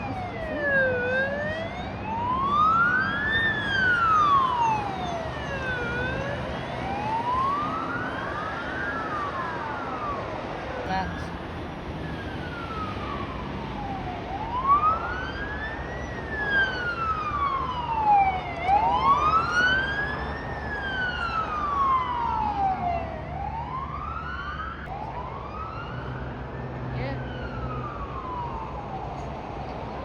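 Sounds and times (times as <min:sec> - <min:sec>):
emergency siren wailing: 0:00.0 - 0:30.0
road traffic rumble: 0:00.0 - 0:30.0.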